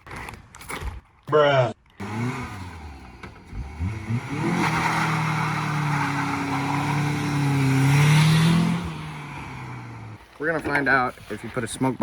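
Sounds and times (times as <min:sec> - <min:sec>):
car engine revving: 0:02.0 - 0:10.2.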